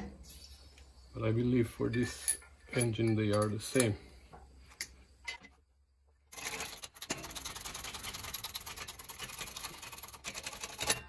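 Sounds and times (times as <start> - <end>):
metal parts scraping and rattling: 6.3 - 11.0.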